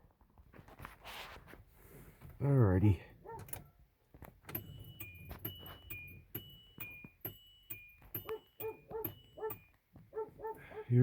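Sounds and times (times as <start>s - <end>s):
two-tone car warning chime: 4.5s - 9.8s.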